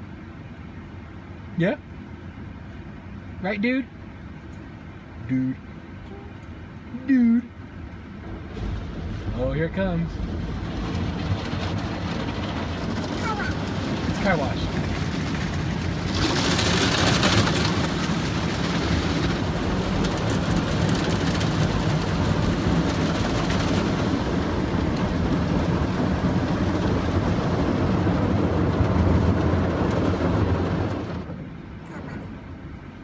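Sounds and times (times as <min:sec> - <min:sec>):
car wash machinery rumble: 0:00.0 - 0:33.0
water spray on car: 0:08.3 - 0:31.3.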